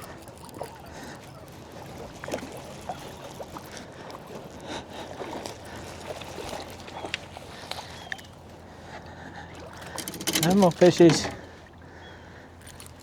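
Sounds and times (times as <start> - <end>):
water splashing against kayak hull: 0.0 - 11.9
small clicks and knocks: 9.8 - 11.5.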